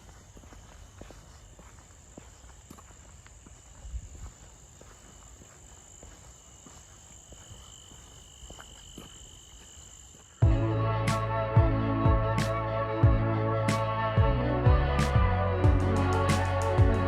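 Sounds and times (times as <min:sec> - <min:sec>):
insects chirring: 0:00.0 - 0:10.4
faint footsteps: 0:00.0 - 0:10.7.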